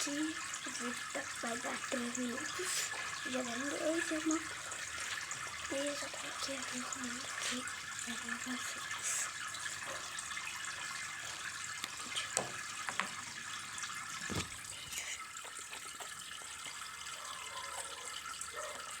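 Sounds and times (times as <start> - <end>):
running water in fish tank: 0.0 - 19.0.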